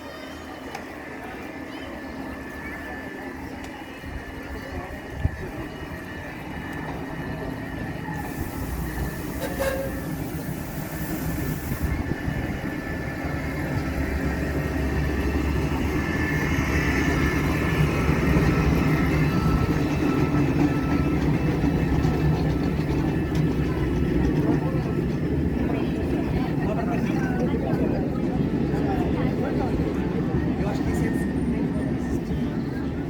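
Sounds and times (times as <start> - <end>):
electric train rumbling on rails: 0.0 - 33.0
hiss: 8.2 - 12.2.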